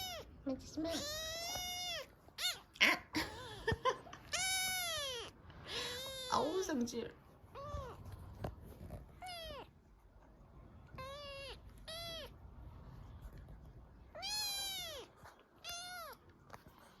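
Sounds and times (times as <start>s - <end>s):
kitten meowing: 0.0s - 2.9s, 4.3s - 6.6s, 7.5s - 8.2s, 8.9s - 9.8s, 10.9s - 12.4s, 14.1s - 16.3s.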